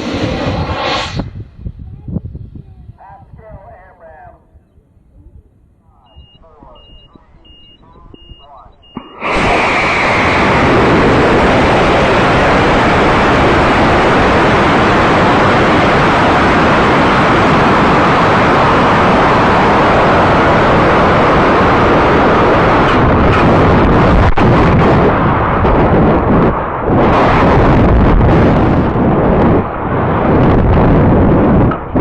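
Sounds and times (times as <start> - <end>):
model rocket launch roar: 0.0 - 1.7, 9.0 - 32.0.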